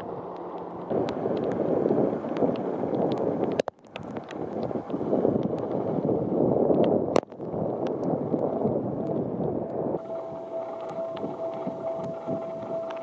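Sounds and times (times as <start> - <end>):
rain: 0.0 - 13.0
strong wind buffeting microphone: 0.0 - 13.0
steady pulsing tone: 10.0 - 13.0.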